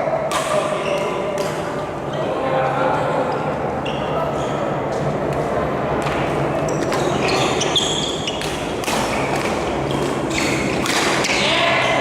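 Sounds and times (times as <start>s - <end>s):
rackets hitting shuttlecock: 0.2s - 1.8s, 6.0s - 11.5s
shoes squeaking on court floor: 0.7s - 2.4s, 3.3s - 5.1s, 6.1s - 12.0s.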